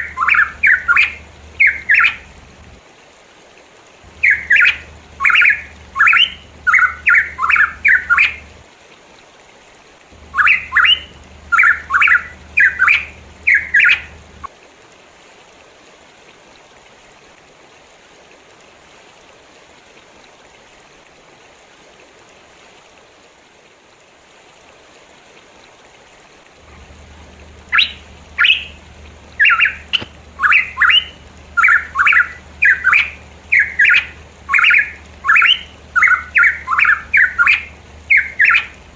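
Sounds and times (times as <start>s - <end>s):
bird singing sharp notes: 0.0s - 2.2s, 4.2s - 8.4s, 10.3s - 14.1s, 27.6s - 38.7s
low hum: 0.0s - 2.8s, 4.1s - 8.6s, 10.2s - 14.5s, 26.1s - 38.9s
faint steady hiss: 0.0s - 38.9s.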